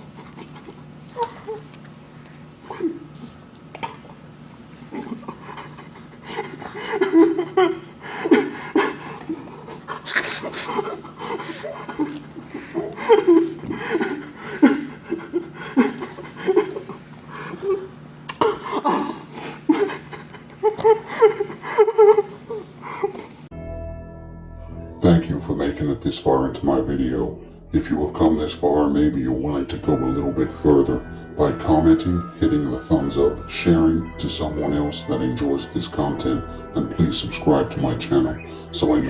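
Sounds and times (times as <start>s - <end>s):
person breathy laughing or panting: 5.0s - 23.4s.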